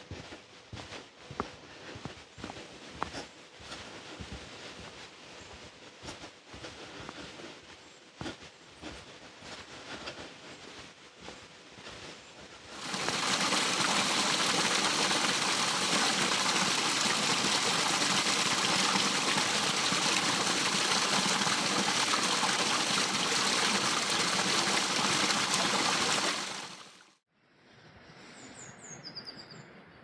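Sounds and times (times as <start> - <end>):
waterfall rushing: 12.8 - 27.0.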